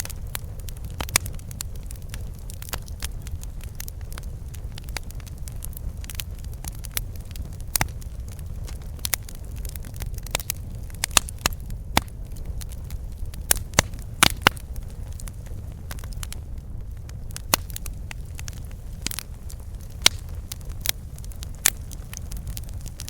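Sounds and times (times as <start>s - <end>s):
campfire wood crackling and popping: 0.0s - 23.0s
low rumble of flames: 0.0s - 23.0s.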